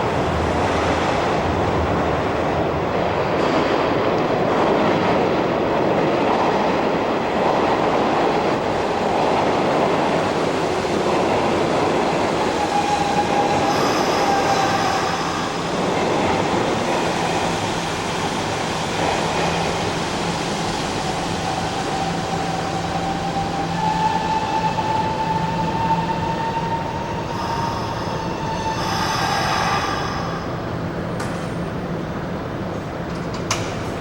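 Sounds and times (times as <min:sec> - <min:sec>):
train rumbling and roaring: 0:00.0 - 0:34.0
high squeal of brakes: 0:12.7 - 0:15.6, 0:23.4 - 0:30.5.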